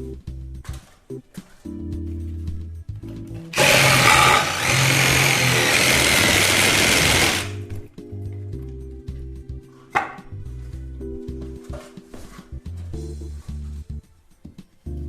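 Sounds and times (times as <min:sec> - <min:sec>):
power saw cutting: 0:03.5 - 0:07.6.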